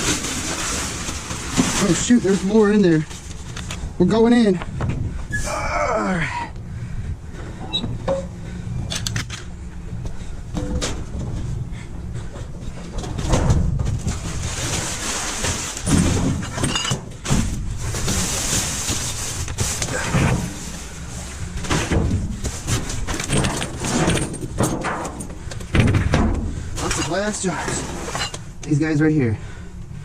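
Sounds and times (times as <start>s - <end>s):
rustling of bags and debris: 0.0s - 5.7s, 6.9s - 30.0s
knocks and clatters: 12.2s - 20.6s, 21.6s - 28.7s.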